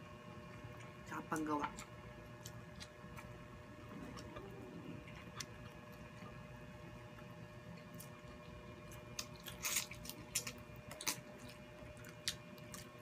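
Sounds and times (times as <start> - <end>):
sharp wet clicks and crackles: 1.8 - 3.4, 7.8 - 13.0
shrimp being bitten and chewed: 7.7 - 13.0.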